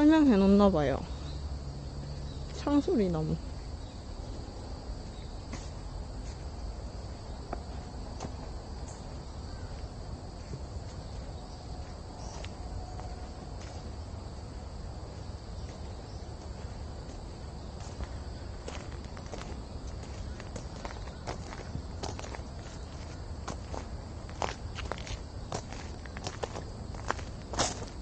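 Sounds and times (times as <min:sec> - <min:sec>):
insects singing: 0:00.0 - 0:28.0
footsteps on path: 0:01.6 - 0:28.0.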